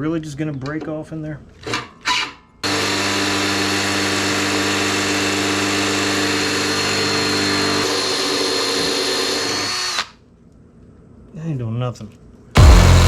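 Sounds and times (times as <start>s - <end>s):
electric drill drilling into bolt: 2.6s - 10.2s.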